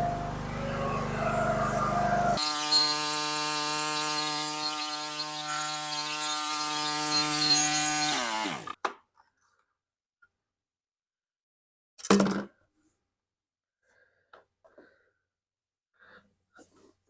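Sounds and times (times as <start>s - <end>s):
engine winding down: 0.0s - 8.8s
riding mower engine running: 0.0s - 8.8s.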